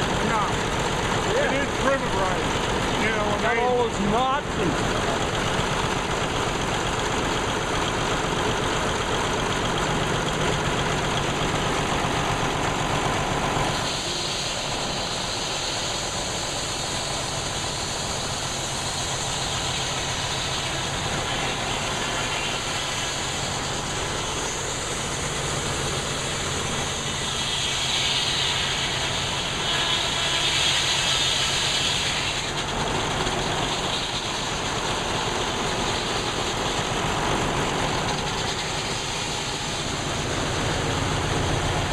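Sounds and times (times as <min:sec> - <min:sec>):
engine running under load: 0:00.0 - 0:41.9
saw blade cutting log: 0:10.3 - 0:41.9.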